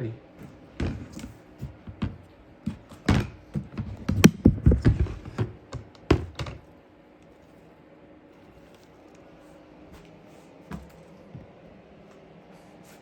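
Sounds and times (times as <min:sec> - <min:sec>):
plastic tubs clattering: 0:00.7 - 0:06.7.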